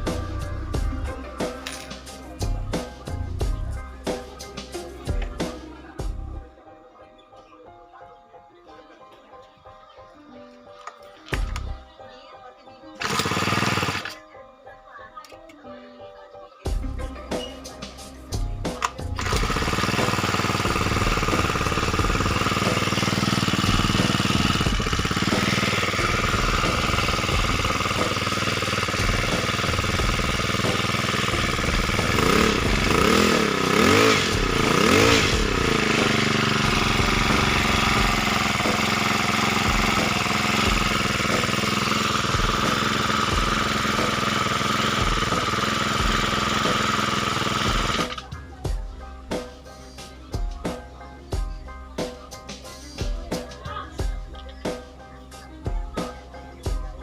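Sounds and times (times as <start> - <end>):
small water pump engine running: 13.0 - 14.2, 18.7 - 48.3.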